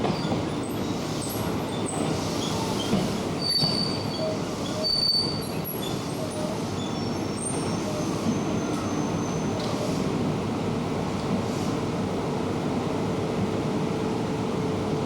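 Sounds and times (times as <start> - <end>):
train wheels rumbling on track: 0.0 - 15.0
high-pitched wheel squeals: 1.7 - 9.6.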